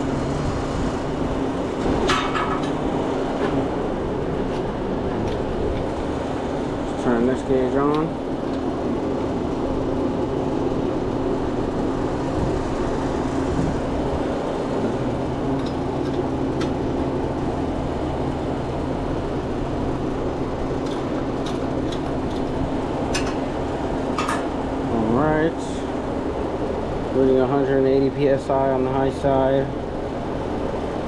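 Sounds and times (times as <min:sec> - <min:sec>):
fan noise: 0:00.0 - 0:31.0
refrigeration machinery hum: 0:00.0 - 0:31.0.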